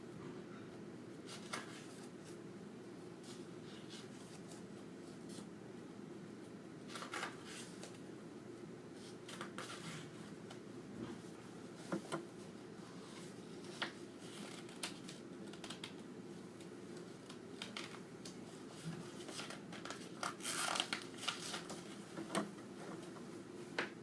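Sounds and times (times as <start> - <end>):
book pages rustling: 1.3 - 2.4, 18.6 - 23.1.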